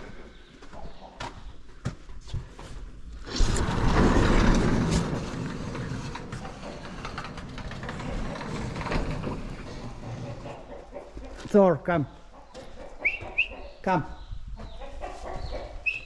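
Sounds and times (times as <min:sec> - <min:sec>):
shed door rumbling open: 0:03.2 - 0:10.7.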